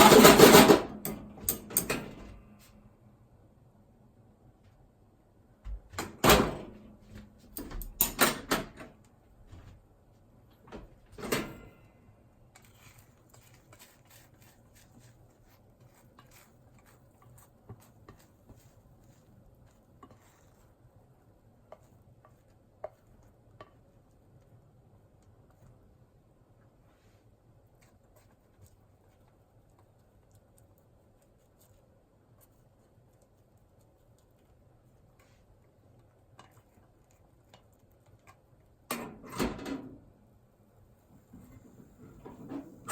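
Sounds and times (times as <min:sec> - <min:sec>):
frying pan and utensils clattering: 0:00.0 - 0:02.2.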